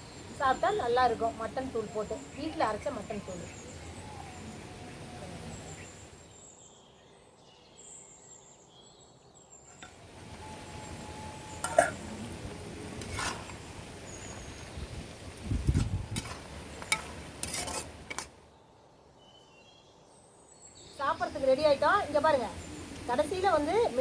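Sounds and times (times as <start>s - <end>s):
faint bird chirps: 0.0s - 12.6s
metal ladle clinking and scraping: 11.5s - 13.7s, 16.1s - 18.4s.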